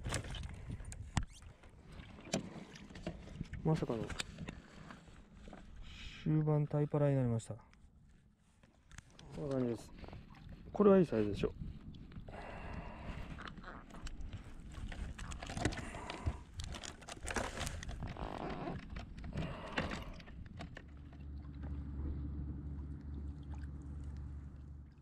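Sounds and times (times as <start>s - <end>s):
water noise: 9.0s - 25.0s
knocks and clicks on kayak: 14.0s - 21.1s
steady low hum: 19.4s - 25.0s.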